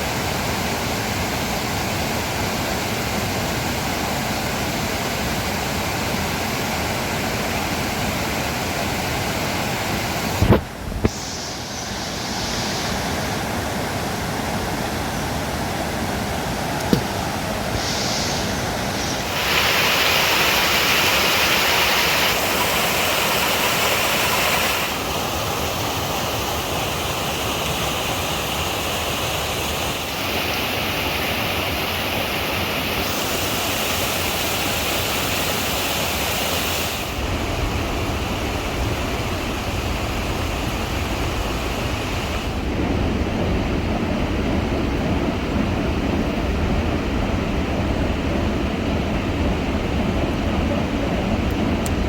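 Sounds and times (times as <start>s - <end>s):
rain falling: 16.5s - 27.2s.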